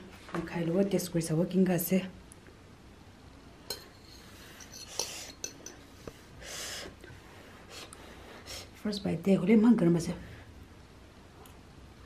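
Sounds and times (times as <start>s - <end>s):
cutlery clinking on a plate: 3.7s - 5.8s.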